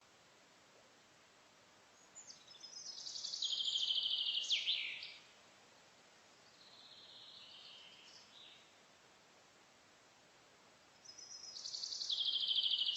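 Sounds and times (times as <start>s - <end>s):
songbird singing trills: 2.0s - 5.2s, 11.0s - 12.9s.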